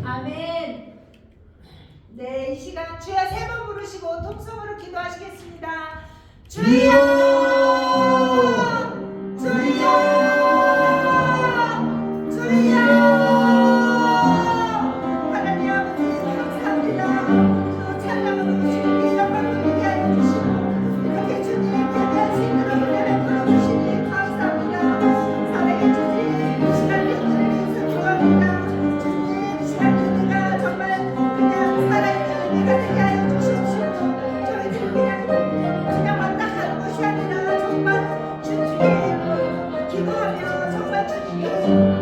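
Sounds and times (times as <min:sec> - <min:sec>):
congregation praying aloud: 0:06.5 - 0:42.0
instrumental church music: 0:06.5 - 0:42.0
loud voice calling out: 0:06.6 - 0:15.0.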